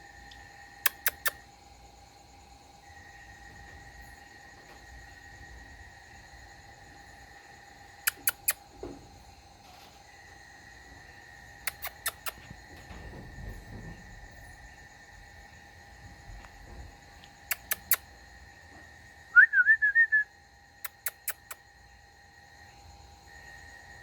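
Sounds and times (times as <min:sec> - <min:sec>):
sharp clicks: 0:00.3 - 0:01.4, 0:08.1 - 0:08.6, 0:11.6 - 0:12.5, 0:17.2 - 0:18.0, 0:20.9 - 0:21.6
high wavering whistle-like call: 0:19.3 - 0:20.3.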